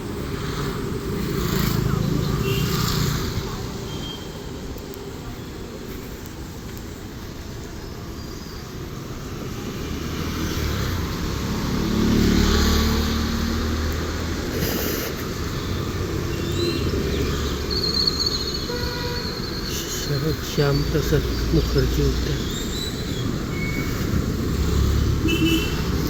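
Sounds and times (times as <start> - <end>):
vehicle passing by: 0.1 - 3.9, 9.0 - 18.2, 20.0 - 26.0.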